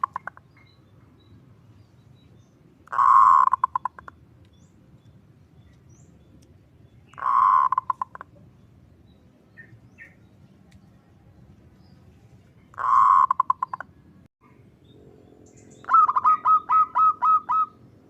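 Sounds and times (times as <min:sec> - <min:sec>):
dove cooing: 0:02.9 - 0:04.1, 0:07.1 - 0:08.3, 0:12.8 - 0:13.8, 0:15.8 - 0:17.8.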